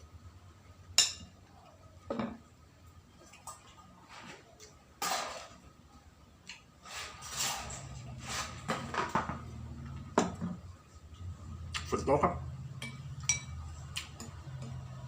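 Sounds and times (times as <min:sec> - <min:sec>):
tableware clinking and knocking: 0:01.0 - 0:01.4, 0:02.1 - 0:02.4, 0:10.1 - 0:10.6, 0:12.8 - 0:14.8.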